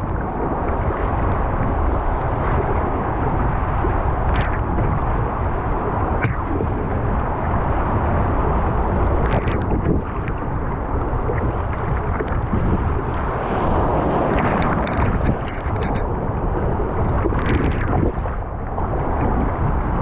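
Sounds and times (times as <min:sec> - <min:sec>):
rushing water: 0:00.0 - 0:20.0
wind buffeting microphone: 0:00.0 - 0:20.0.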